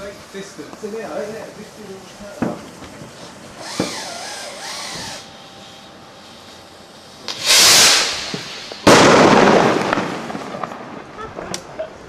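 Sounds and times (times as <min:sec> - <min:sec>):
firework hissing whoosh: 0:00.0 - 0:10.8
firework burst: 0:01.8 - 0:11.3.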